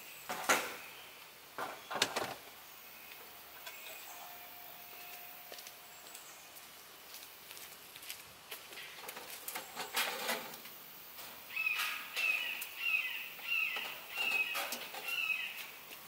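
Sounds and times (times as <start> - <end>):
bird chirping: 11.5 - 15.8.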